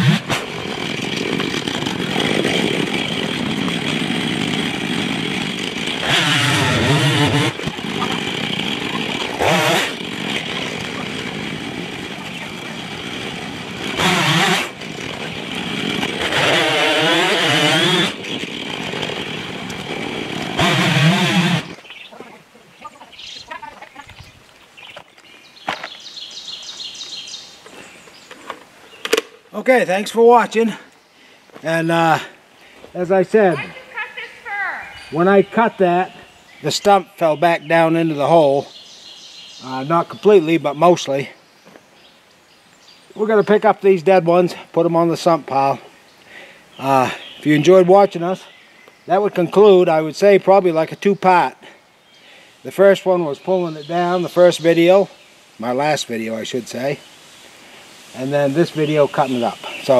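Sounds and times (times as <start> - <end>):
chainsaw running and revving: 0.0 - 21.9
small bird chirping: 21.5 - 29.2, 33.4 - 35.6.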